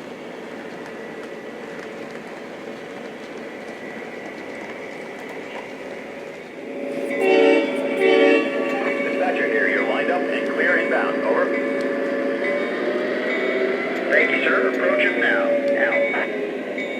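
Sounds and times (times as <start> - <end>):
model train humming and whining: 0.0 - 16.9
train horn blasts: 6.6 - 16.4.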